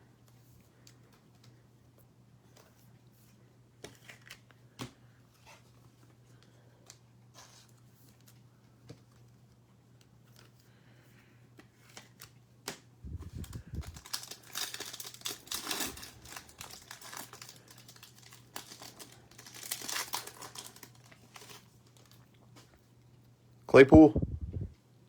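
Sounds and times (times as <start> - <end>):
cards being handled: 0.3 - 10.7, 11.5 - 22.8
wrapper tearing and crinkling: 13.3 - 22.2.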